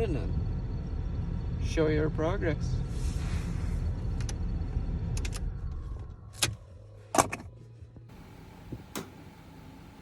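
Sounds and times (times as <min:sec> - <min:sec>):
low rumble: 0:00.0 - 0:07.0
faint low hum: 0:07.9 - 0:10.0
sharp clicks and knocks: 0:08.7 - 0:09.3.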